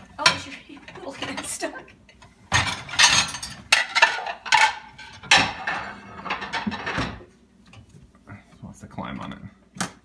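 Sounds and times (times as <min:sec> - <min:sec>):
dishes and cutlery clattering: 0:00.2 - 0:07.9.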